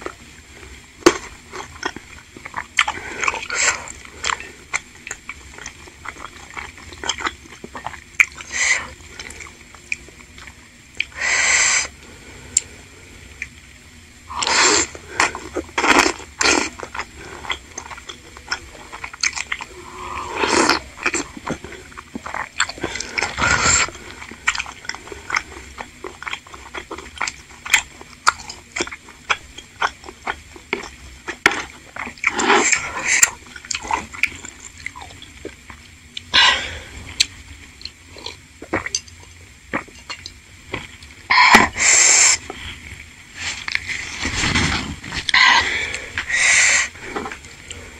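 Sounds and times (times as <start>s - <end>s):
slurping: 14.3s - 29.0s.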